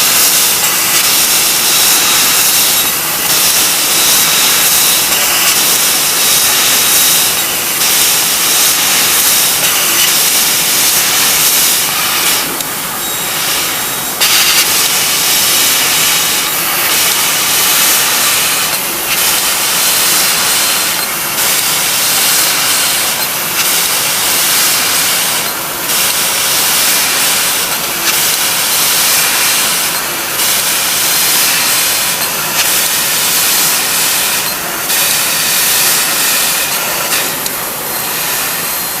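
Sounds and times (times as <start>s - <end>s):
laser cutter gas hissing: 0.0s - 39.0s.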